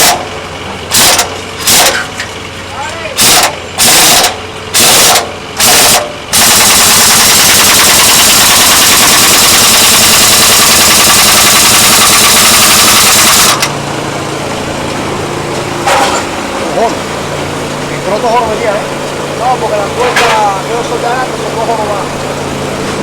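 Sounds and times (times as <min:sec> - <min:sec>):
power tool hammering metal: 0:00.0 - 0:02.2, 0:03.2 - 0:13.8, 0:15.8 - 0:16.5.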